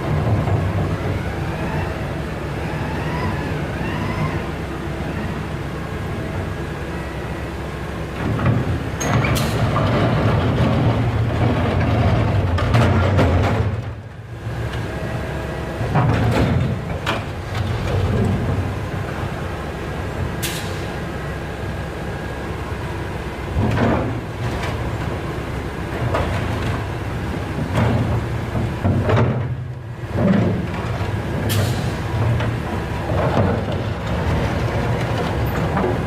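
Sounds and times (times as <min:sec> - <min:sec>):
heavy machinery rumbling: 0:00.0 - 0:36.0
knocks and clanks: 0:08.2 - 0:14.0, 0:15.8 - 0:18.6, 0:23.6 - 0:24.8, 0:26.0 - 0:26.9, 0:27.5 - 0:36.0.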